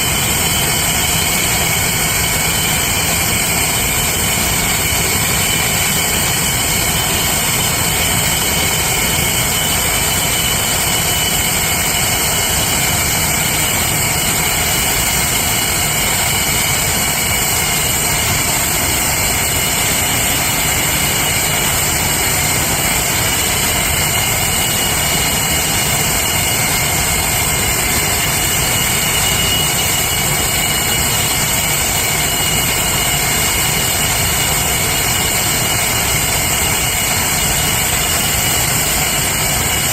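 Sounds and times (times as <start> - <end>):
jet engines running with whine: 0.0 - 39.9.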